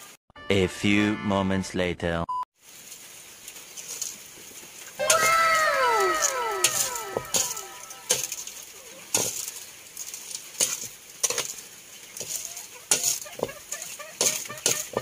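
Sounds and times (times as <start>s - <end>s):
scratchy rustle of kernels: 2.6s - 5.2s, 6.7s - 15.0s
ladle scraping and knocking wok: 12.2s - 15.0s.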